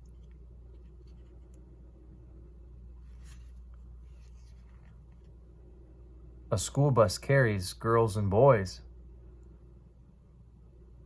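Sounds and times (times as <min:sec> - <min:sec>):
low hum: 0:00.0 - 0:11.0
paper page turning: 0:03.0 - 0:05.3.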